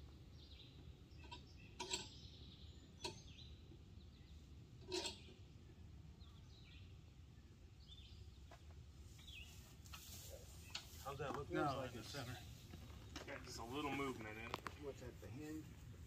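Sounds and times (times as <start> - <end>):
faint bird chirps: 0.3 - 8.6.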